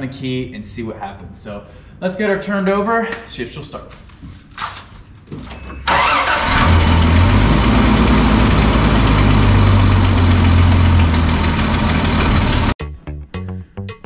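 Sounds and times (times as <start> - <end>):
car engine idling: 5.9 - 12.8
starter motor cranking: 5.9 - 12.8.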